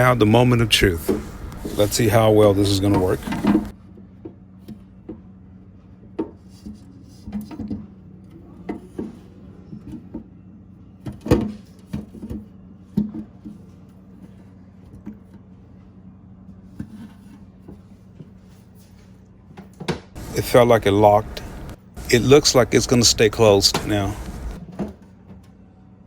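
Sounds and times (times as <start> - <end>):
steady low hum: 0.0 - 3.7, 20.2 - 24.6.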